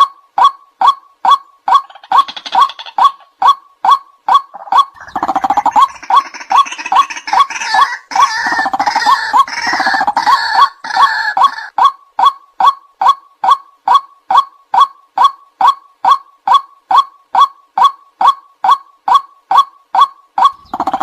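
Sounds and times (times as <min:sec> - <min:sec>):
waterhen calling: 0:00.8 - 0:12.3, 0:16.1 - 0:21.0.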